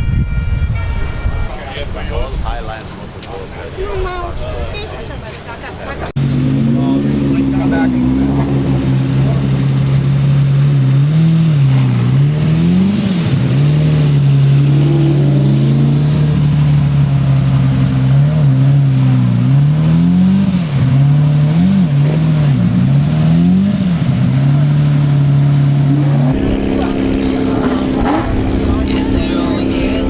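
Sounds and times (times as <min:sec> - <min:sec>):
car engine revving: 0:06.1 - 0:30.0.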